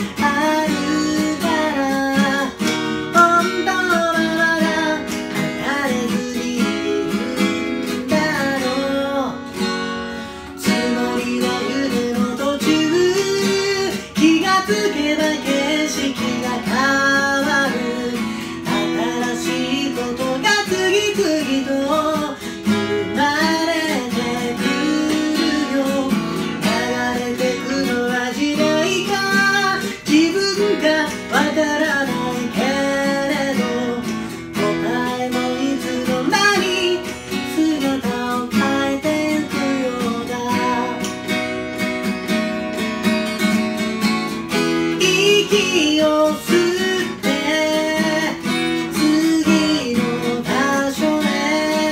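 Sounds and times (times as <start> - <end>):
woman singing: 0.0 - 9.5, 10.6 - 41.2, 44.8 - 51.9
acoustic guitar strumming: 0.0 - 51.9.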